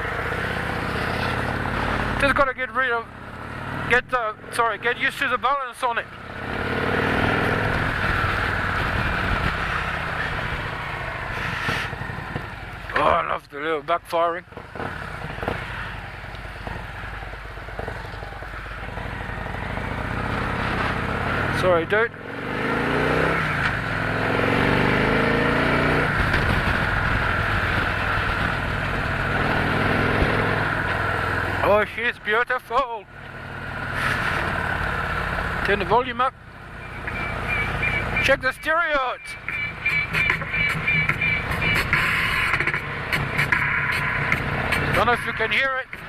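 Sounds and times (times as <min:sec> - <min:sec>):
motorcycle engine running: 0:00.0 - 0:46.0
steady rushing noise: 0:41.0 - 0:46.0.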